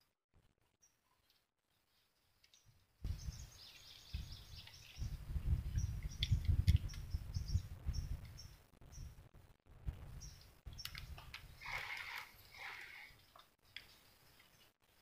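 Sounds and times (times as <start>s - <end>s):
birds chirping: 2.4s - 9.3s, 10.0s - 15.0s
sharp clicks: 10.8s - 13.9s.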